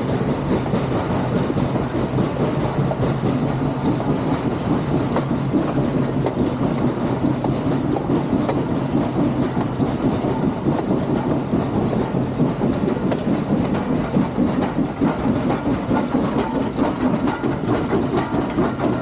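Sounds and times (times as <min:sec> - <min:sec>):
train rumbling by: 0:00.0 - 0:19.0.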